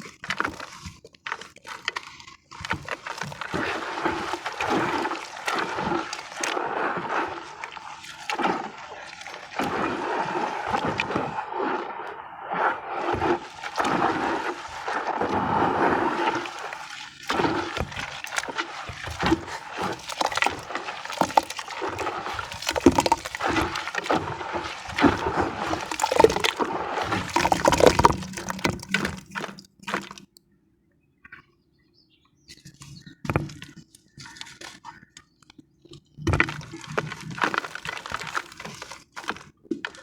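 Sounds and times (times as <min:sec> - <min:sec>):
small wet crunches and crackles: 0:00.0 - 0:12.1, 0:13.2 - 0:30.4, 0:33.6 - 0:40.0
wet cement sloshing and gurgling: 0:00.0 - 0:30.4, 0:36.2 - 0:40.0.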